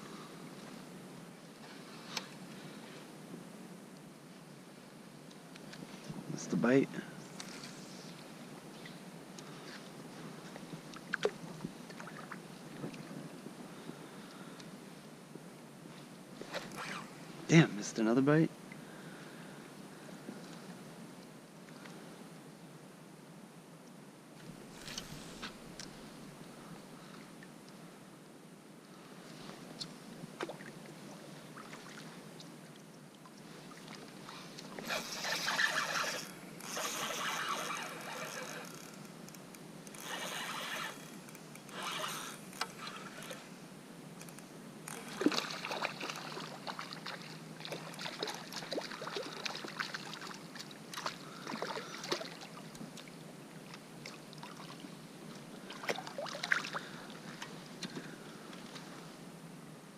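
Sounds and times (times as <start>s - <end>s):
paddle splashing through water: 45.0s - 53.2s, 55.6s - 58.0s.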